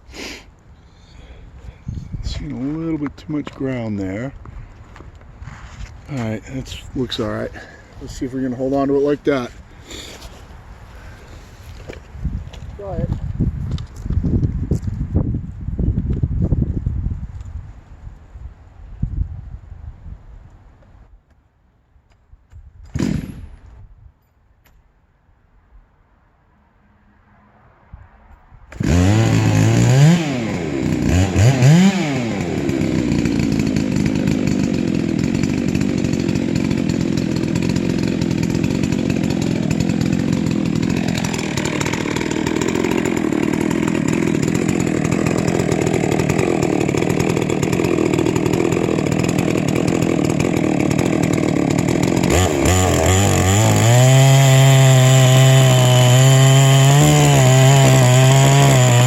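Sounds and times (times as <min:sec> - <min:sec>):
chainsaw revving and cutting log: 0:28.7 - 0:59.0.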